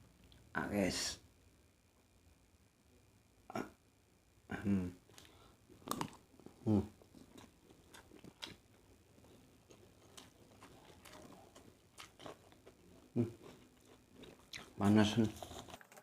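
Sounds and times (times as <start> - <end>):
person humming: 4.5 - 5.0, 6.6 - 6.9.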